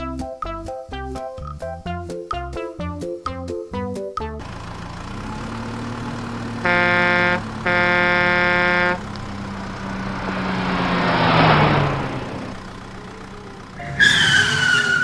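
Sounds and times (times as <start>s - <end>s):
engine hum: 4.4s - 15.0s
vehicle horn honking: 6.0s - 15.0s.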